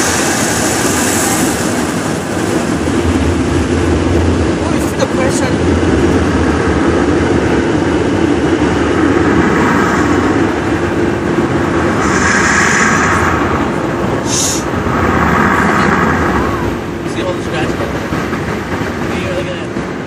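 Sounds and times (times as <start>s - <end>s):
car wash dryer blowers: 0.0s - 20.0s.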